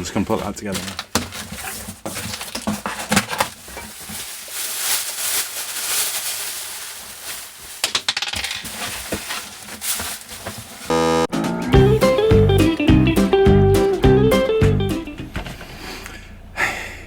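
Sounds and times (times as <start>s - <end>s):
rustling: 0.0s - 11.0s
chair parts clinking and knocking: 7.8s - 9.1s.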